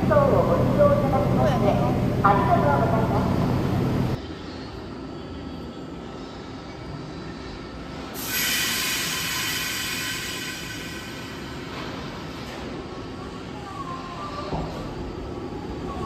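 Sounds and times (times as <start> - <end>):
railcar low rumble: 0.0 - 16.0
high squealing hiss: 8.2 - 12.0.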